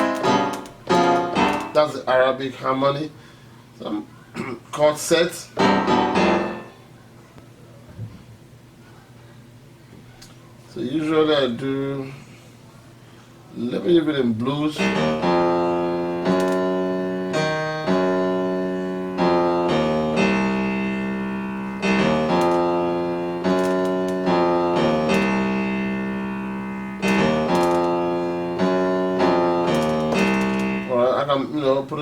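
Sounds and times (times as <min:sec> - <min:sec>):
piano chords: 0:00.0 - 0:02.4, 0:05.6 - 0:07.0, 0:14.6 - 0:32.0.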